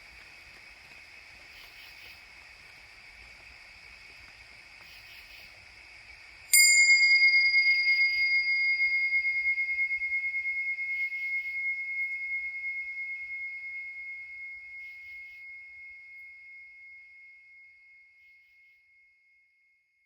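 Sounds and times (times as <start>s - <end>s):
insects chorus: 0.0s - 17.2s
bell ringing: 6.6s - 14.4s.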